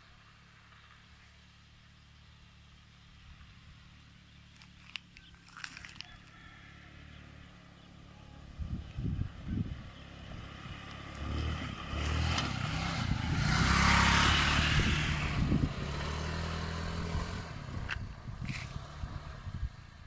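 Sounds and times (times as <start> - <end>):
motorbike engine running: 8.7 - 20.0.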